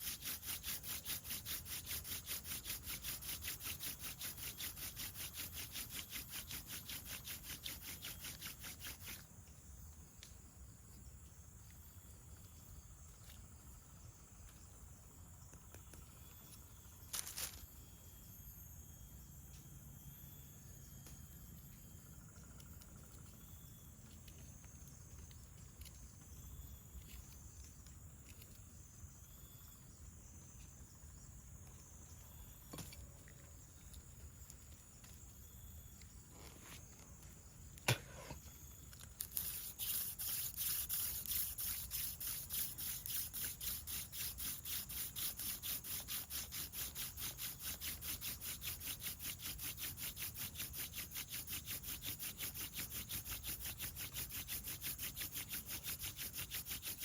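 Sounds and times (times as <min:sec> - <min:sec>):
wooden spindle rubbing on fireboard: 0:00.0 - 0:09.2, 0:39.2 - 0:57.0
insects chirring: 0:00.0 - 0:57.0.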